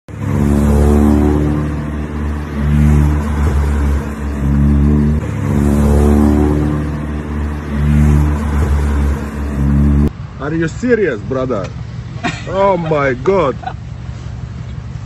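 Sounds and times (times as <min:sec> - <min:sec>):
car engine accelerating hard: 0:00.1 - 0:10.1.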